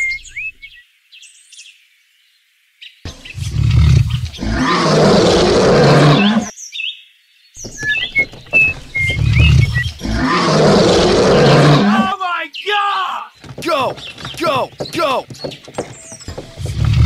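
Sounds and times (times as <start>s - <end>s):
bird chirps: 0.0s - 1.8s, 2.8s - 4.7s, 6.1s - 11.6s, 12.2s - 17.0s
lion roar: 3.1s - 6.5s, 9.0s - 12.1s, 16.6s - 17.0s.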